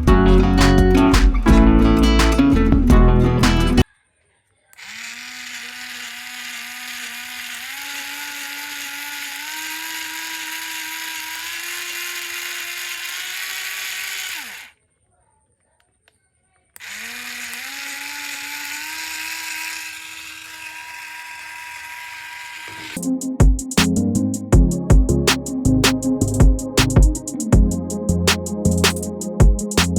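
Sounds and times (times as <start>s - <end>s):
toy car motor whine: 4.7s - 14.8s, 16.8s - 23.0s.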